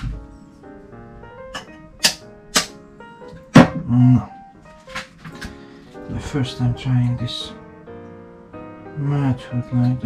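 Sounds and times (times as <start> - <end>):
background music: 0.0 - 10.0
sharp knock: 1.6 - 2.8.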